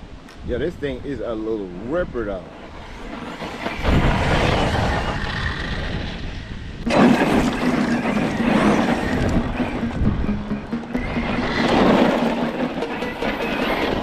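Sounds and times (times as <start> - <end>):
tyres rushing over ground: 6.8 - 14.0.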